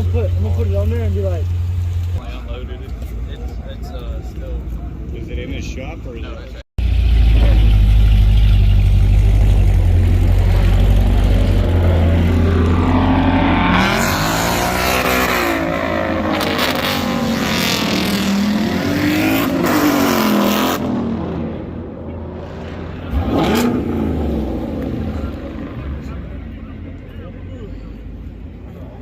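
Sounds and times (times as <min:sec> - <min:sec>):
car engine rumbling and revving: 0:00.0 - 0:29.0.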